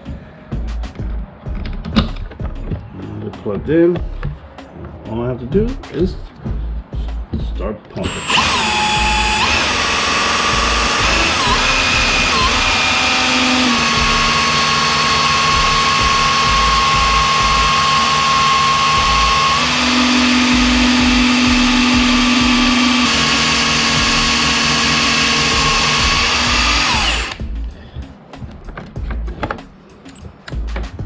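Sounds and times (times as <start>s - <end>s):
oil extractor pump running: 8.1s - 27.4s.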